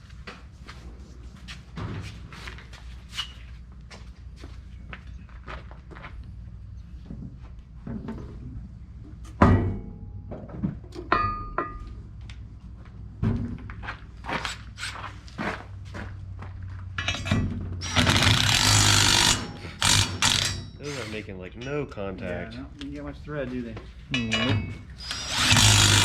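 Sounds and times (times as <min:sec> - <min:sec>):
metal bolts and tools clinking: 0:17.0 - 0:21.8, 0:24.1 - 0:26.0.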